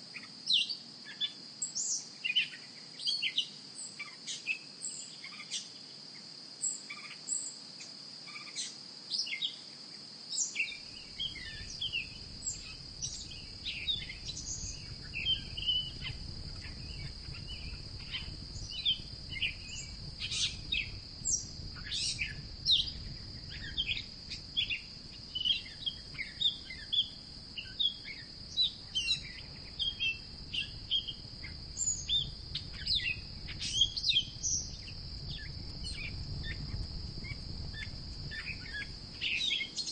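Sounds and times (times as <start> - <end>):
high insect drone: 0.0 - 39.9
birds chirping: 10.6 - 36.6
low rumble: 29.3 - 39.1.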